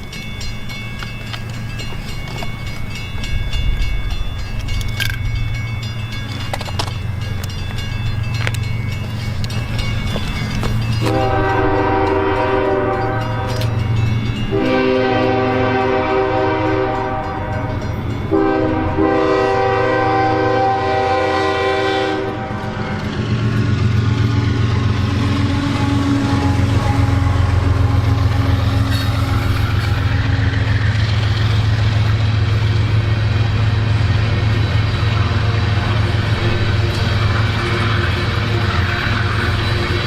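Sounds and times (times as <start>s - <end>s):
train rumbling: 0.0s - 40.0s
train horn blasts: 11.0s - 13.9s, 14.5s - 23.2s, 24.1s - 30.6s, 35.2s - 40.0s.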